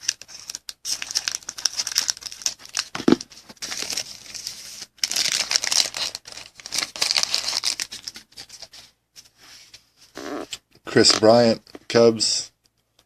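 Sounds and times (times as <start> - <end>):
card pack wrapper crinkling: 0.0 - 8.7.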